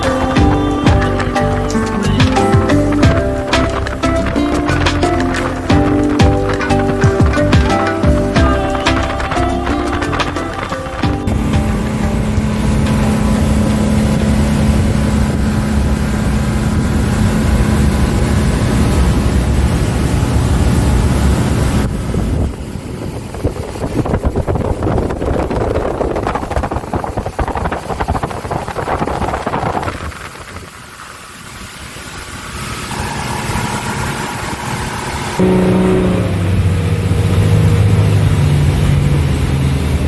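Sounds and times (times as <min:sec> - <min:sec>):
steady tone: 0:00.0 - 0:21.8, 0:32.2 - 0:39.0
motor engine running: 0:00.0 - 0:40.0.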